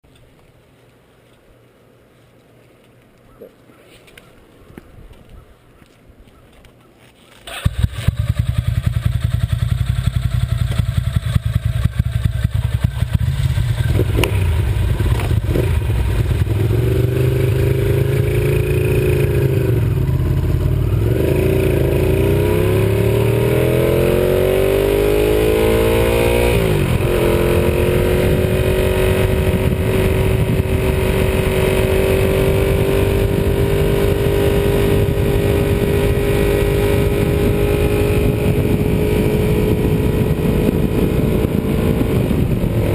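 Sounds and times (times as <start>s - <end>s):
motorcycle accelerating through gears: 7.5s - 42.9s.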